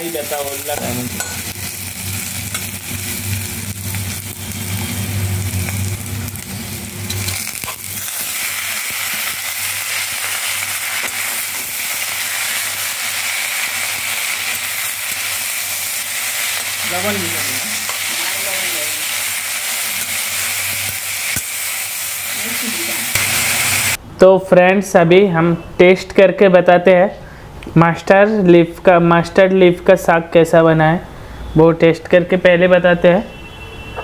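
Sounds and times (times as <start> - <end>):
sizzling in a wok: 0.0 - 24.0.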